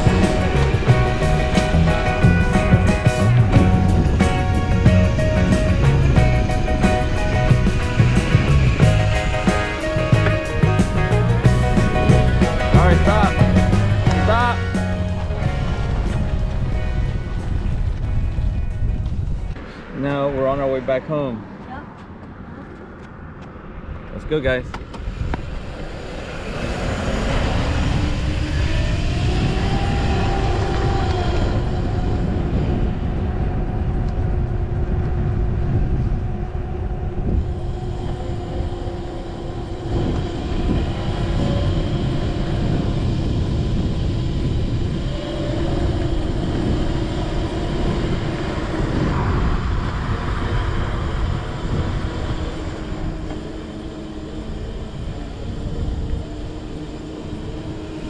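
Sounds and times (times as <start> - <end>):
low rumble of wind and ground: 0.0 - 58.0
electric dirt bike motor whining: 25.0 - 58.0.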